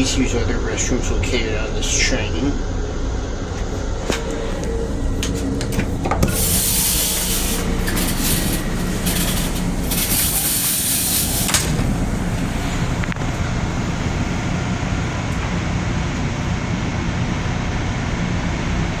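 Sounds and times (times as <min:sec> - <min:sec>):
train low rumble: 0:00.0 - 0:19.0
loud hiss: 0:04.2 - 0:14.5.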